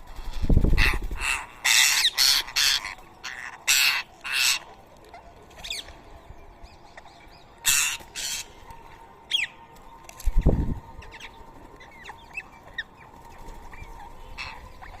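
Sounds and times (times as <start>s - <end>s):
parakeets squawking: 0.2s - 4.7s.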